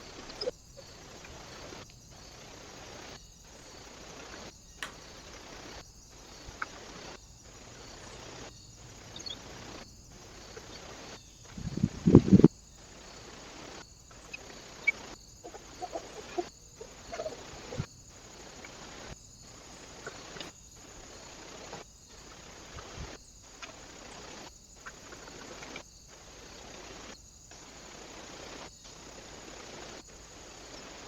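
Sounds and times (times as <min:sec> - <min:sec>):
outdoor background hiss: 0:00.0 - 0:31.0
faint tapping sounds: 0:04.3 - 0:05.6, 0:14.2 - 0:21.0
faint short bird calls: 0:14.2 - 0:17.9.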